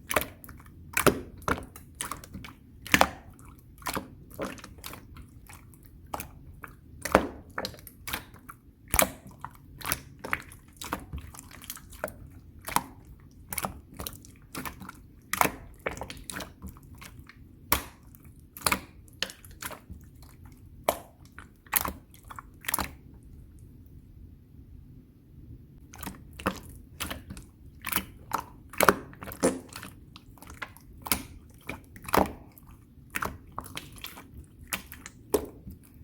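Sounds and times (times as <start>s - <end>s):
slime squished by hand: 0.0s - 23.6s, 25.8s - 36.0s
faint low hum: 0.0s - 36.0s.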